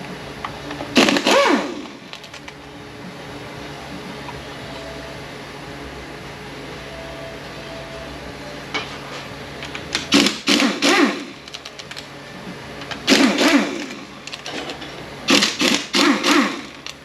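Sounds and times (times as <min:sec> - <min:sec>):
steady low hum: 0:00.0 - 0:17.0
power tool whining bursts: 0:01.0 - 0:02.0, 0:10.1 - 0:11.4, 0:13.1 - 0:14.2, 0:15.3 - 0:17.0.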